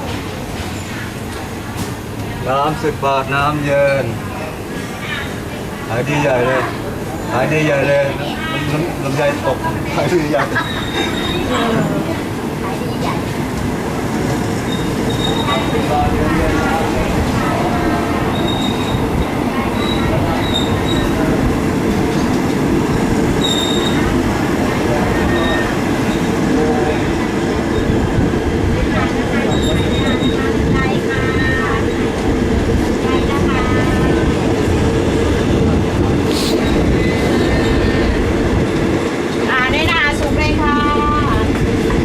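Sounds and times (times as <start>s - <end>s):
train rumbling on rails: 0.0s - 42.0s
high-pitched wheel squeals: 23.4s - 24.0s
brief hiss: 36.3s - 36.7s.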